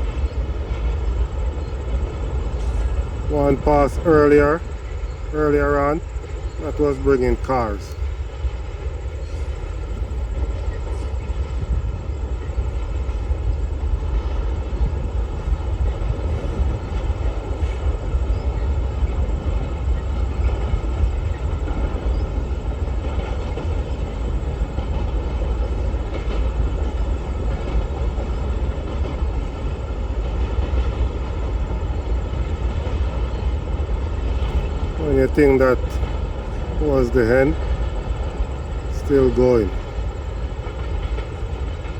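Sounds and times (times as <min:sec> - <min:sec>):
freight train rolling past: 0:00.0 - 0:41.9.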